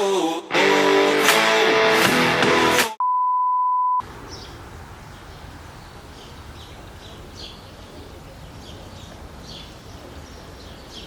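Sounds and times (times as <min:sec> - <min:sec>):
guitar music: 0:00.5 - 0:03.0
electronic beep: 0:03.0 - 0:04.0.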